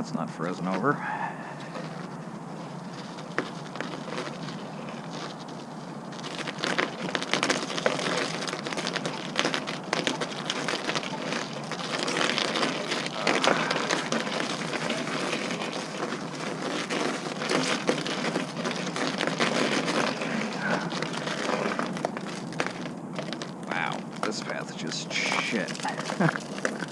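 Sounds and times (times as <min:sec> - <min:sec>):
footsteps crunching in snow: 0:00.6 - 0:26.9.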